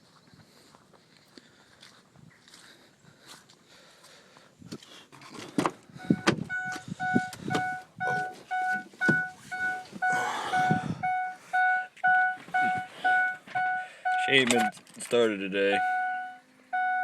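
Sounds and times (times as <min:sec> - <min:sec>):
knocks and thumps in cab: 0:05.5 - 0:11.0, 0:12.2 - 0:13.7
vehicle warning chime beeping: 0:06.0 - 0:14.8, 0:15.6 - 0:17.0.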